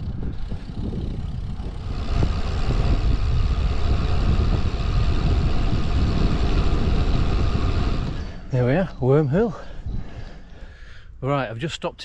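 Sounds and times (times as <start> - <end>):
tyre and road noise: 0.0 - 9.3
wind buffeting microphone: 0.0 - 11.2.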